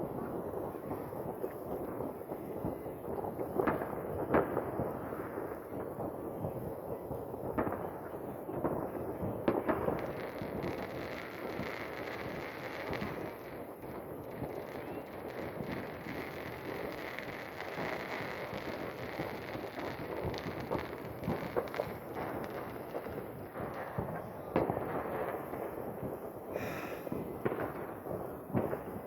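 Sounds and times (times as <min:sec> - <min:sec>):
fireworks popping and crackling: 0:00.0 - 0:29.0
loud firework bangs: 0:07.5 - 0:29.0.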